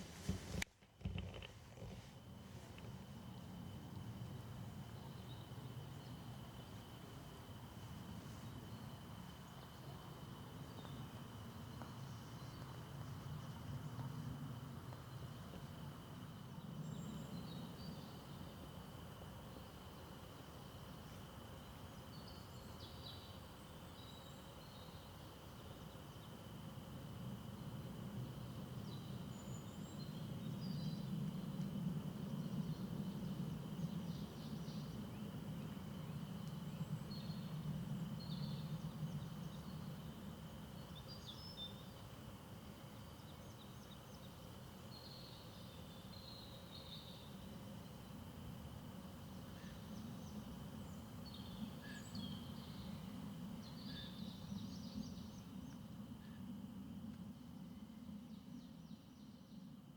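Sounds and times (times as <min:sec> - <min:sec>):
small birds chirping: 0:08.3 - 0:26.7, 0:32.3 - 0:56.4.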